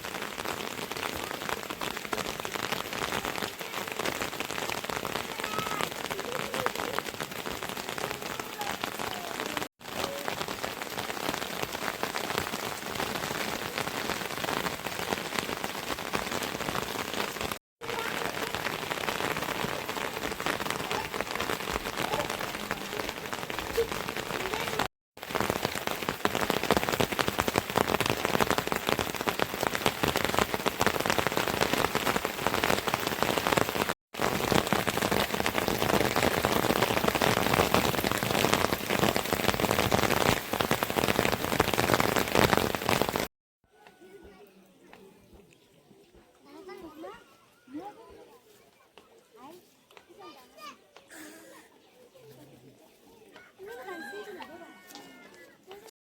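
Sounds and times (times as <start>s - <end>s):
heavy rain falling: 0.0s - 43.3s.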